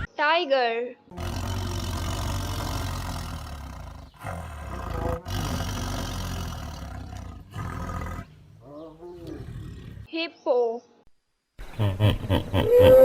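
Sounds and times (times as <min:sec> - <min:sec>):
tiger roaring and growling: 0:01.1 - 0:10.1.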